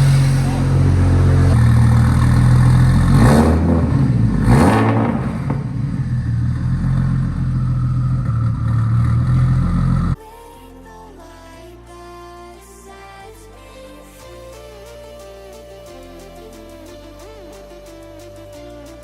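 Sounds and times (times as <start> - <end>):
engine running with pitch sweeps: 0.0 - 10.2.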